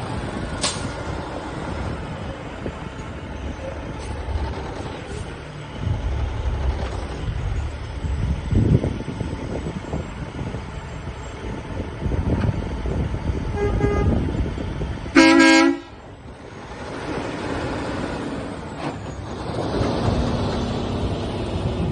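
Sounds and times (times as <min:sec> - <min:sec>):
low engine rumble: 0:00.0 - 0:21.9
vehicle horn blast: 0:13.5 - 0:14.2, 0:15.1 - 0:16.0.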